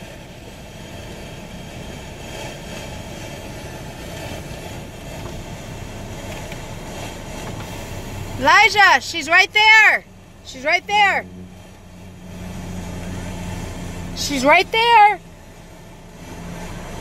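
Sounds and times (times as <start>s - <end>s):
engine rumble with hiss: 0.0s - 17.0s.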